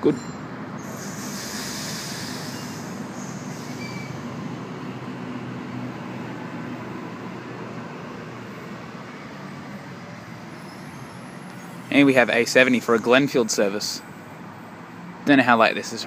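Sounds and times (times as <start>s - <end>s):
electric train pulling away: 0.2s - 11.8s.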